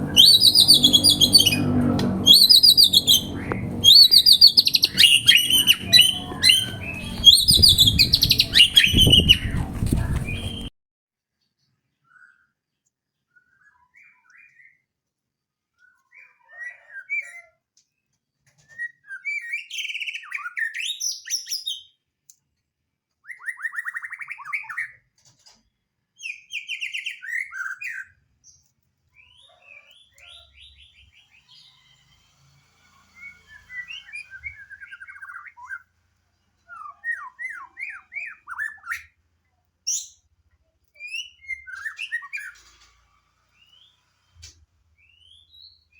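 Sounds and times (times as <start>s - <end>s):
bird singing trills and whistles: 0.0s - 10.7s, 41.0s - 42.6s.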